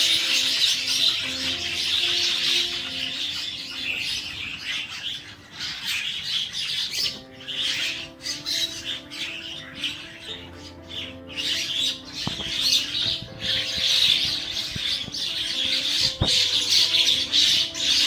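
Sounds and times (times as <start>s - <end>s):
faint background music: 0.0s - 18.0s
small birds chirping: 0.0s - 18.0s.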